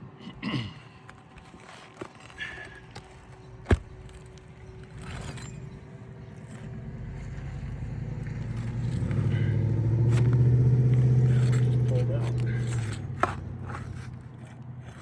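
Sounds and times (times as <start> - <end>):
vehicle driving past: 6.6 - 13.6.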